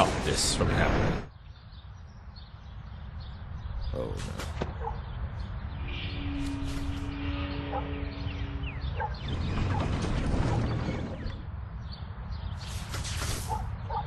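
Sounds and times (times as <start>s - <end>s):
rumbling clattering with creaks: 6.4s - 12.0s.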